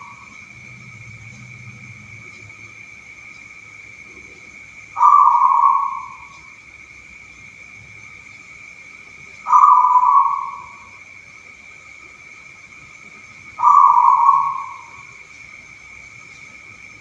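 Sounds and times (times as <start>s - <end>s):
dove cooing: 5.0s - 6.5s, 9.4s - 11.0s, 13.6s - 15.2s.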